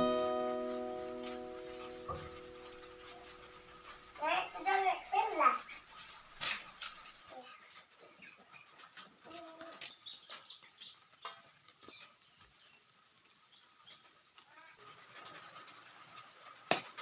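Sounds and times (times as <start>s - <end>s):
small birds chirping: 0.0s - 16.7s.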